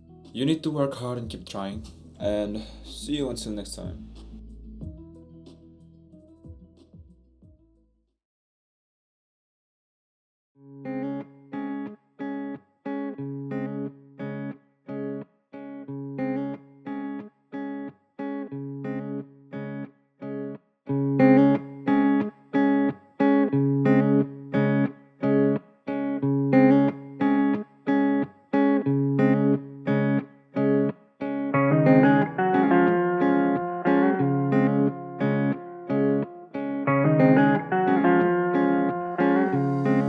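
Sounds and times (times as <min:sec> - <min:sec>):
guitar picked chords: 0:10.6 - 0:40.0.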